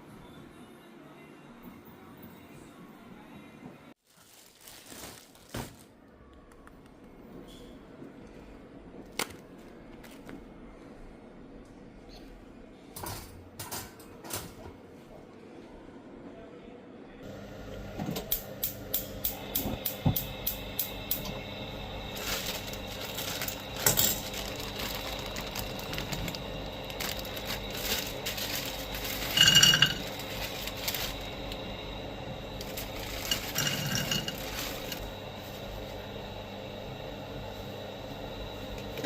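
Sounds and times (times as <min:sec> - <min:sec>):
metal and crockery clinking: 0:22.2 - 0:26.4, 0:27.0 - 0:31.2, 0:32.6 - 0:35.1.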